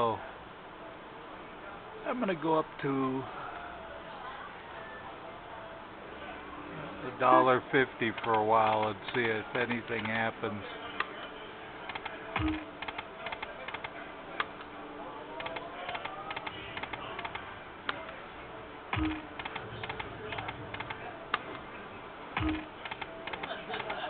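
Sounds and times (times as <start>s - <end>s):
slot machine low thud: 12.4s - 12.8s, 18.9s - 20.8s, 22.4s - 22.8s.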